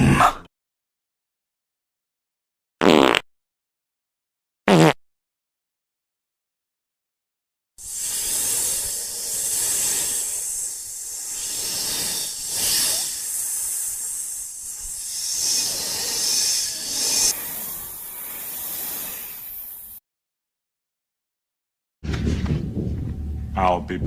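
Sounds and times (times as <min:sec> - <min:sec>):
snake hissing: 0:07.8 - 0:20.0.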